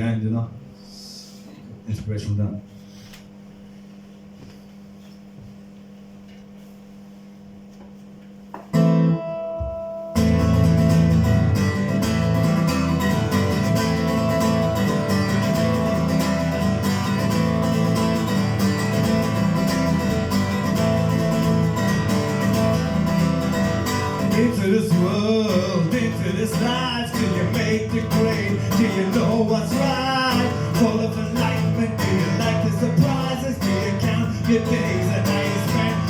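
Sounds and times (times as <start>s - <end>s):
acoustic guitar strumming: 8.6s - 36.0s
ringing guitar chord: 8.8s - 36.0s.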